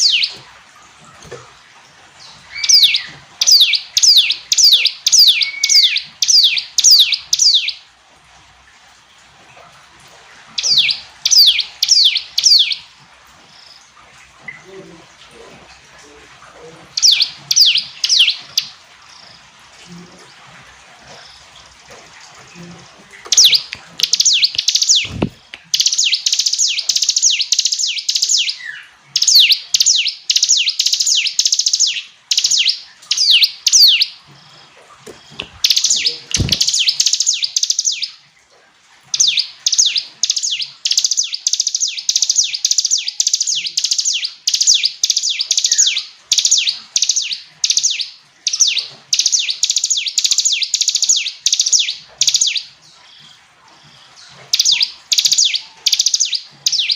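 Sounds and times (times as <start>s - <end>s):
bird rapid high-pitched chattering: 0.0s - 0.4s, 2.5s - 7.8s, 10.6s - 12.9s, 16.9s - 18.8s, 23.3s - 34.2s, 35.2s - 38.2s, 39.1s - 52.7s, 54.5s - 56.9s.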